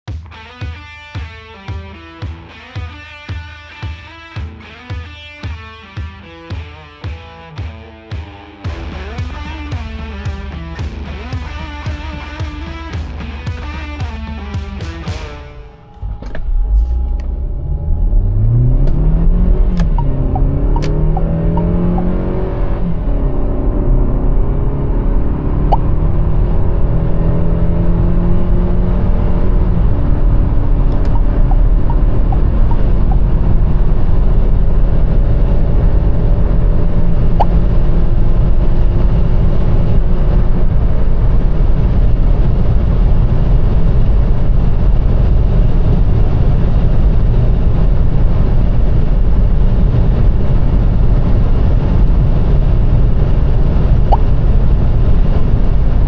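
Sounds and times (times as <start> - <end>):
car engine accelerating: 8.6 - 56.0
wind and tyre noise: 15.2 - 56.0.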